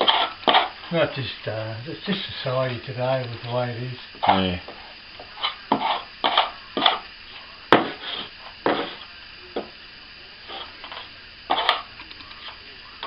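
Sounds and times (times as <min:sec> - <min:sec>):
plastering tools scraping plaster: 0:00.0 - 0:00.7, 0:05.4 - 0:07.0, 0:10.5 - 0:11.9.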